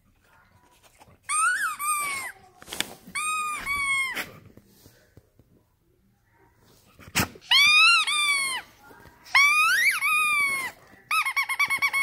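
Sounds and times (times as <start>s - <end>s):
squeaky toy squeaks: 1.3s - 2.4s, 3.1s - 4.3s, 7.4s - 8.7s, 9.3s - 12.0s.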